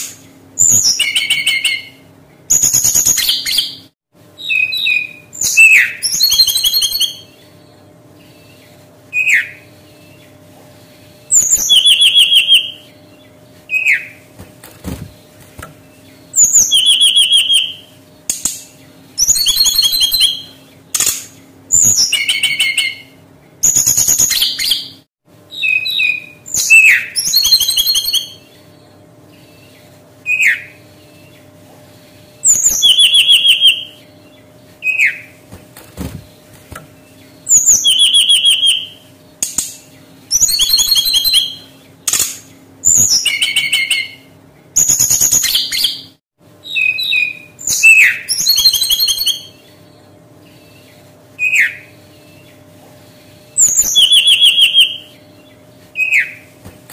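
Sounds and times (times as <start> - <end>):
bird singing trilled whistles: 0.0 - 3.8, 4.4 - 7.4, 9.1 - 10.3, 11.3 - 12.9, 16.0 - 17.9, 19.2 - 20.6, 21.7 - 28.5, 30.3 - 30.8, 32.4 - 34.0, 37.4 - 39.0, 40.3 - 41.7, 42.9 - 49.7, 51.4 - 51.9, 53.6 - 55.2, 56.0 - 56.4
faint steady hum: 0.0 - 56.9.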